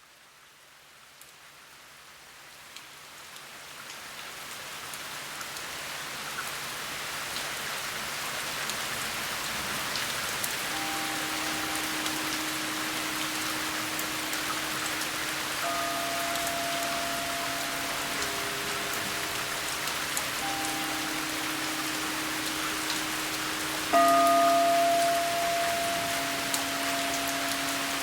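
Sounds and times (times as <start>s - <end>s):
steady rain: 0.0s - 28.0s
singing bowl ringing: 10.7s - 28.0s.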